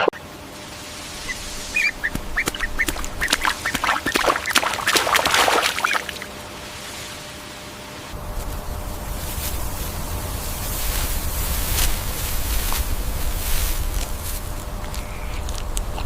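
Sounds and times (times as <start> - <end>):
farm fowl calling: 1.2 - 4.9.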